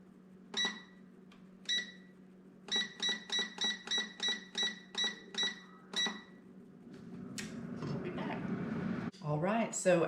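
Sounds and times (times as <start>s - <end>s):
low steady hum: 0.0s - 10.0s
control panel beeping: 0.6s - 1.0s, 1.6s - 2.1s, 2.7s - 6.4s.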